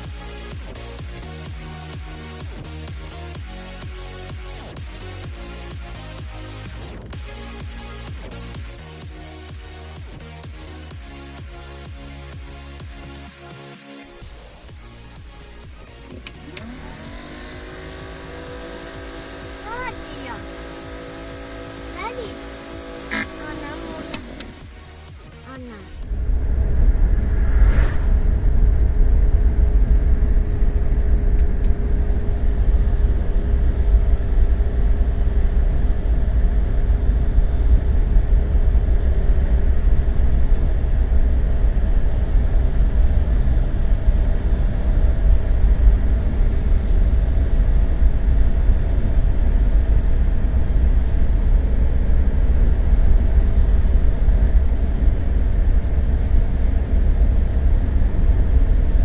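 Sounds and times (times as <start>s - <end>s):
car engine rumbling: 14.2s - 59.0s
faint even hum: 25.9s - 59.0s.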